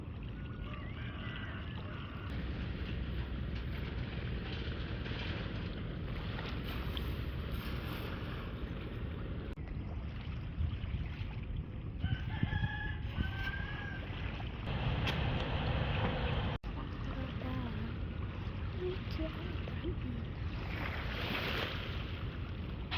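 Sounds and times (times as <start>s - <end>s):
rooster crowing: 0.4s - 2.3s, 12.0s - 14.1s.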